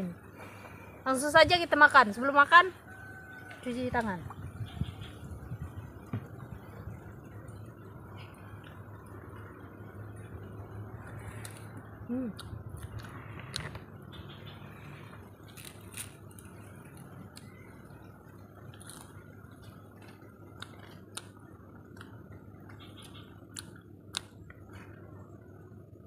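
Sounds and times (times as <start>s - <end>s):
low background noise: 0.0s - 26.0s
soft chewing: 14.7s - 25.5s.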